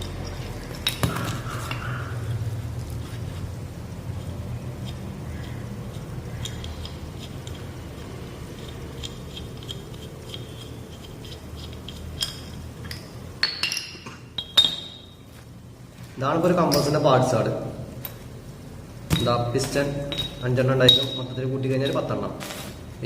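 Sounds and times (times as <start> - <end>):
metal parts clinking and knocking: 0.0 - 1.9, 8.5 - 15.1, 19.1 - 22.2
steady low hum: 0.0 - 23.0.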